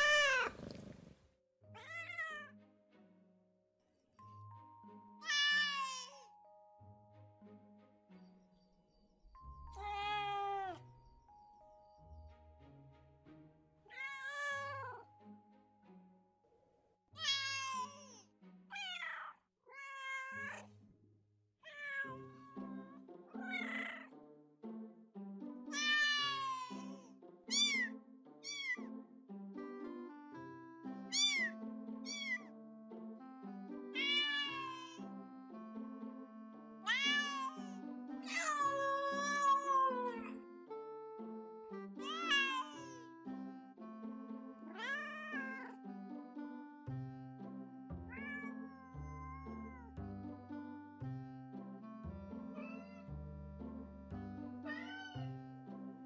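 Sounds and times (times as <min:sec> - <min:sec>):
cats meowing: 0:00.0 - 0:01.0, 0:05.2 - 0:06.3, 0:09.7 - 0:10.8, 0:17.2 - 0:18.2, 0:18.8 - 0:20.6, 0:23.4 - 0:24.1, 0:25.8 - 0:28.8, 0:31.1 - 0:31.5, 0:32.1 - 0:32.4, 0:34.0 - 0:35.0, 0:36.9 - 0:40.4, 0:42.0 - 0:43.0, 0:44.7 - 0:45.7, 0:48.1 - 0:49.9, 0:52.6 - 0:53.1, 0:54.7 - 0:55.2
soft background music: 0:00.0 - 0:01.0, 0:01.6 - 0:21.0, 0:21.6 - 0:56.0.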